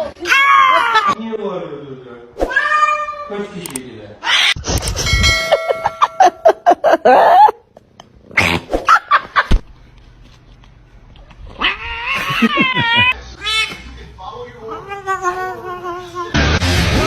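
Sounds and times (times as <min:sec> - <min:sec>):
pet animal crying: 0:02.5 - 0:03.4, 0:04.2 - 0:04.6, 0:11.5 - 0:13.8.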